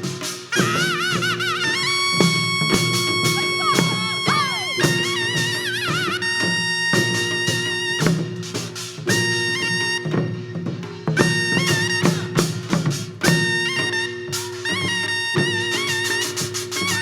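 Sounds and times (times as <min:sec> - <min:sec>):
shrill wind instrument: 0:00.0 - 0:08.3, 0:09.1 - 0:10.3, 0:11.2 - 0:12.6, 0:13.3 - 0:17.0
drum strokes: 0:00.0 - 0:09.3.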